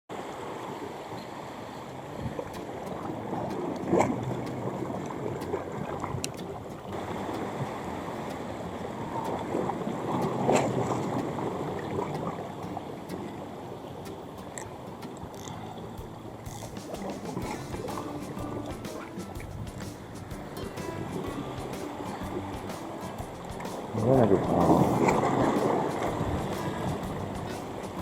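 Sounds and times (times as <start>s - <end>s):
waves sloshing on rocks: 0.2s - 28.0s
wind on microphone: 16.1s - 28.0s
loud water splashes: 16.4s - 28.0s.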